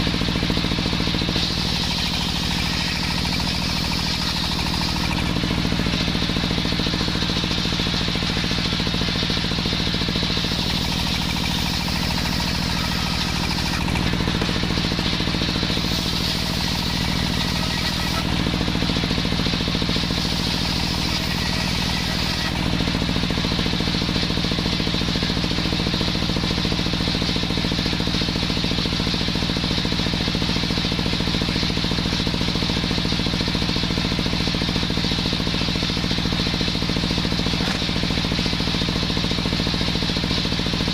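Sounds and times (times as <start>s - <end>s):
small saw engine sawing wood: 0.0s - 26.8s, 34.4s - 39.2s.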